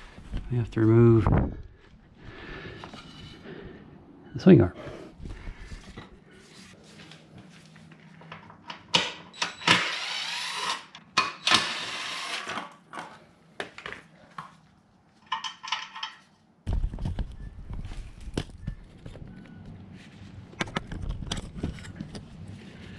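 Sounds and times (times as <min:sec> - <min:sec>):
harsh noisy tool bursts: 0:09.4 - 0:12.7
short tool whir: 0:09.4 - 0:12.7
metal tools clinking and knocking: 0:15.2 - 0:16.3.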